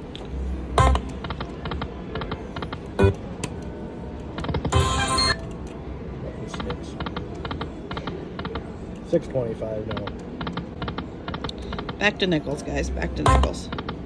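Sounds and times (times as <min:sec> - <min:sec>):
electronic chime jingle: 0:00.8 - 0:01.2, 0:04.8 - 0:05.4
slot machine clicks: 0:00.8 - 0:01.6, 0:03.0 - 0:03.6, 0:04.7 - 0:05.6, 0:13.2 - 0:13.8.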